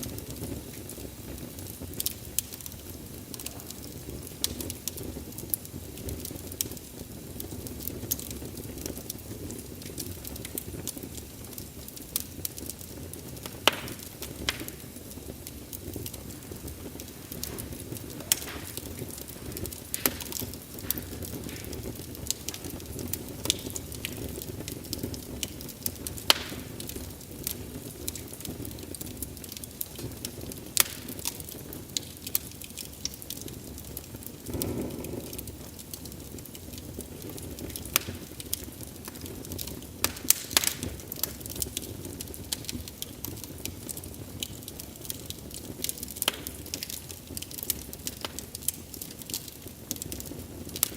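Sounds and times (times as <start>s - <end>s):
low rush of flames: 0.0s - 50.9s
wood fire crackling: 0.0s - 50.9s.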